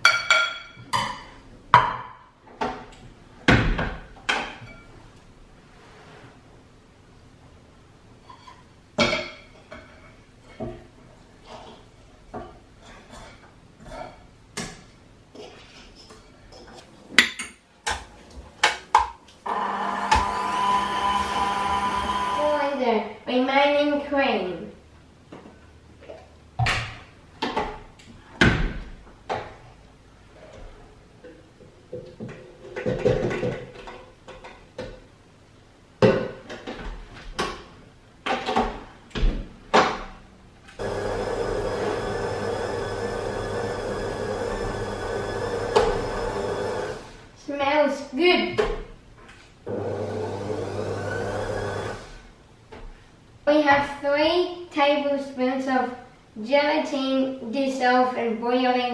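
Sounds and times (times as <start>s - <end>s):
kitchen appliance humming: 17.8s - 22.8s, 40.8s - 47.2s, 49.7s - 52.3s
dishes and containers knocking: 31.9s - 35.0s.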